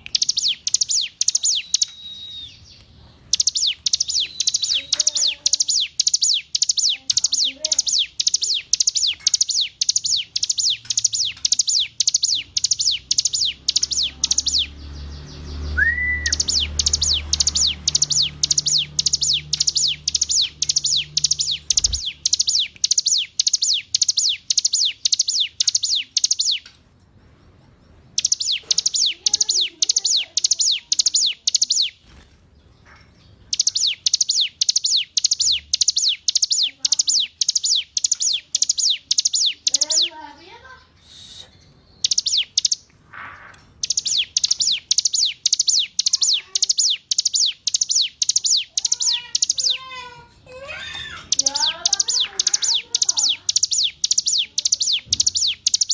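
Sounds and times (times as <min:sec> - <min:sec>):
bird singing sharp high notes: 0:00.0 - 0:26.6, 0:28.2 - 0:32.2, 0:33.5 - 0:42.9, 0:43.8 - 0:50.0, 0:50.8 - 0:55.9
rising whistle: 0:15.8 - 0:16.4.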